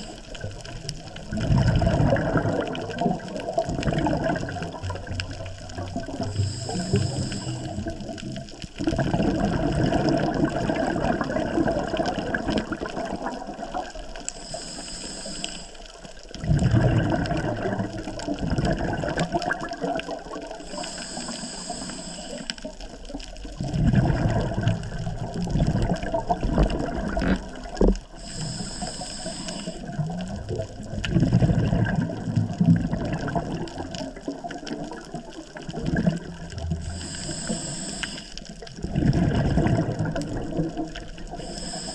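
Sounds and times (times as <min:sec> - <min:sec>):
exhaled bubbles underwater: 0:00.0 - 0:41.9
regulator hiss: 0:06.3 - 0:08.1, 0:14.2 - 0:16.2, 0:20.6 - 0:22.7, 0:28.1 - 0:30.0, 0:36.8 - 0:38.6, 0:41.3 - 0:41.9.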